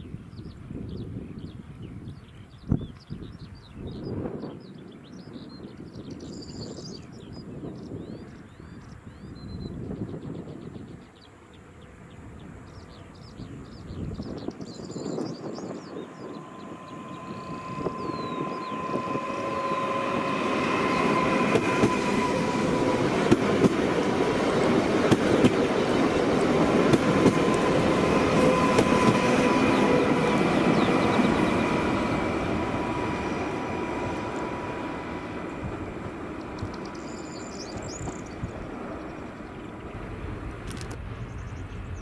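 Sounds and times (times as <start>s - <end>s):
train passing: 11.0s - 42.0s
steady high whine: 16.1s - 24.2s.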